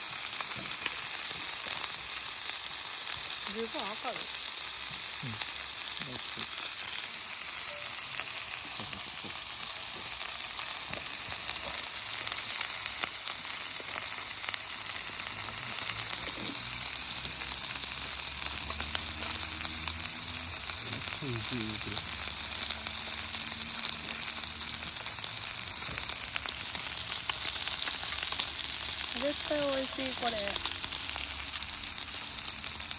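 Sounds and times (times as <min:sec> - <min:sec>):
meat sizzling on a griddle: 0:00.0 - 0:32.9.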